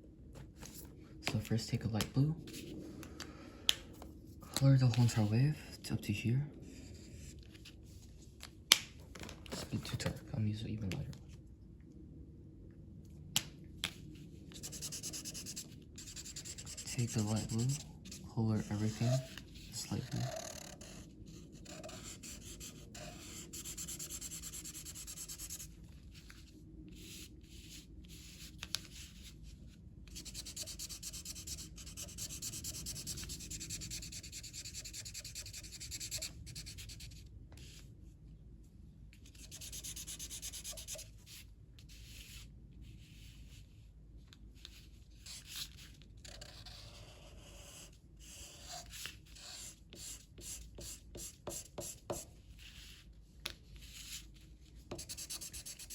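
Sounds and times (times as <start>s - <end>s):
colouring tool rubbing on paper: 14.5s - 25.7s, 30.1s - 37.0s, 54.9s - 55.9s.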